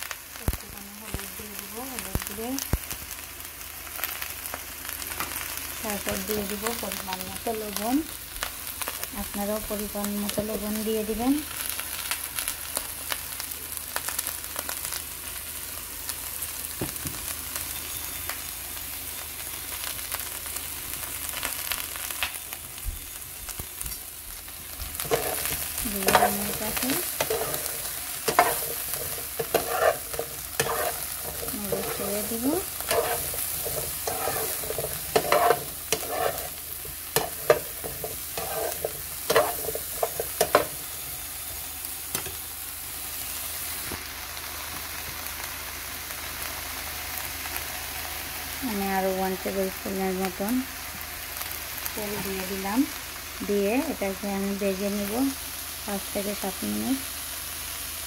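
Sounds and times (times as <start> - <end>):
vegetables sizzling in frying pan: 0.0 - 58.0
spatula scraping and knocking pan: 24.8 - 40.8.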